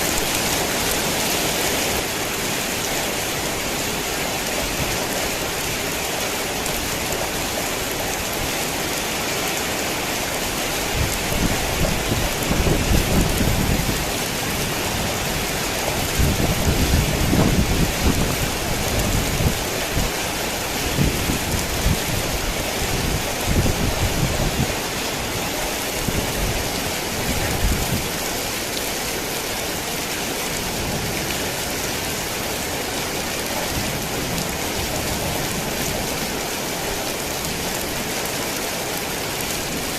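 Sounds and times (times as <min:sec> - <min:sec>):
heavy rain falling: 0:00.0 - 0:39.9
thunder rumbling: 0:10.8 - 0:20.2.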